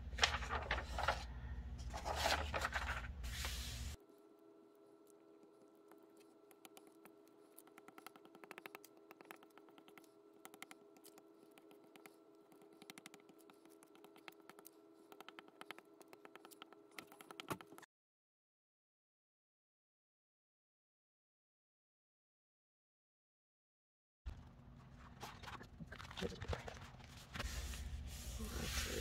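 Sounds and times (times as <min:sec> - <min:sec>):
low electrical hum: 0:00.0 - 0:17.3
paper and tools clicking: 0:05.0 - 0:17.9.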